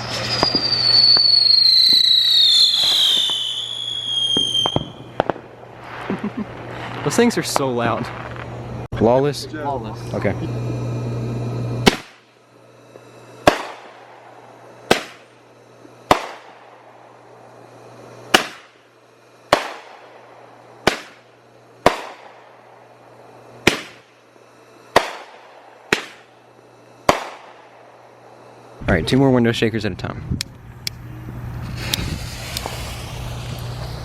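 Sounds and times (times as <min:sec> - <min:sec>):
firework bangs: 0:00.0 - 0:08.9, 0:11.8 - 0:17.5, 0:18.2 - 0:18.9, 0:19.5 - 0:24.2, 0:24.8 - 0:28.4, 0:31.3 - 0:34.0.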